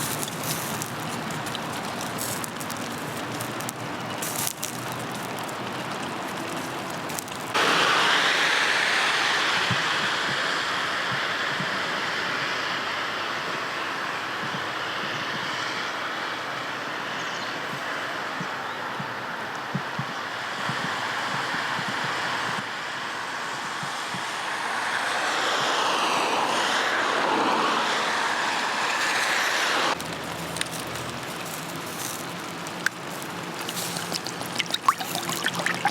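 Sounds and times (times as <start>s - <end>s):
wood fire crackling: 0.0s - 7.8s, 28.7s - 35.9s
rain falling: 0.0s - 14.3s, 27.3s - 35.9s
loud steady hiss: 0.0s - 35.9s.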